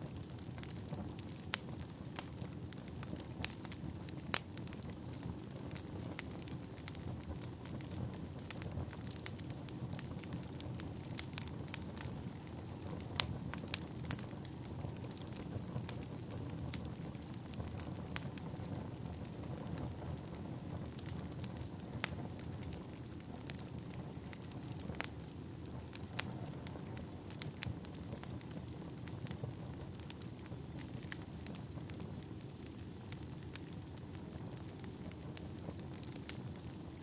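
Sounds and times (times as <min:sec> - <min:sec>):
flames rushing: 0:00.0 - 0:37.0
firewood popping and crackling: 0:00.1 - 0:37.0.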